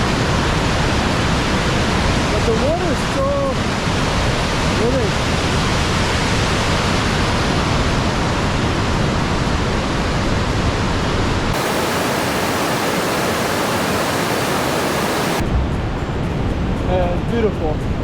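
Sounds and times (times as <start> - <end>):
waterfall roaring: 11.5 - 15.4.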